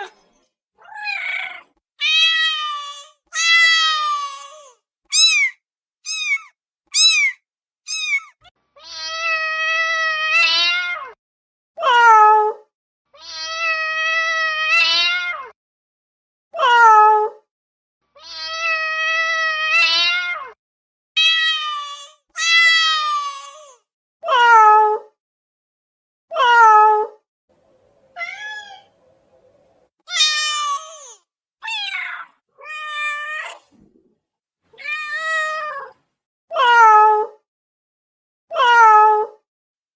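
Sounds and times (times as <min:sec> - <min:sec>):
cats meowing: 0:00.0 - 0:11.1, 0:13.2 - 0:15.5, 0:18.2 - 0:20.5, 0:21.2 - 0:23.7, 0:28.1 - 0:29.0, 0:30.1 - 0:33.8, 0:34.7 - 0:36.0.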